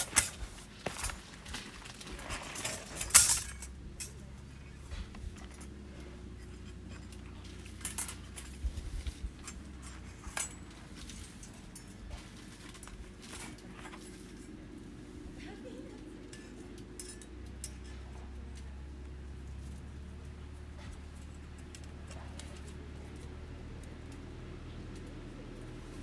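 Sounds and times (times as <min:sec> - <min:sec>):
metallic clinks and knocks: 0:00.0 - 0:14.7, 0:16.3 - 0:18.7
faint low hum: 0:00.0 - 0:26.0.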